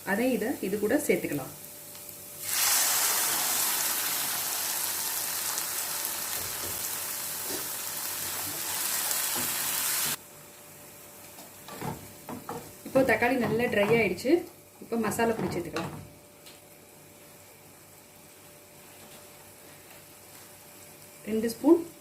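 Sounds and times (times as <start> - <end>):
tomato puree sizzling in oil: 0.1 - 10.2.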